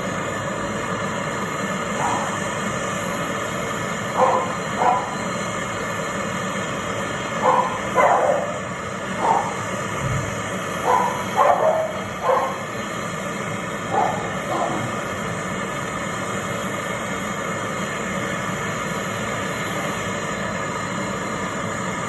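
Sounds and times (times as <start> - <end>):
steady background noise: 0.0 - 22.0
dog barking: 2.0 - 2.5, 4.1 - 5.3, 7.4 - 9.7, 10.8 - 12.8, 13.9 - 15.1.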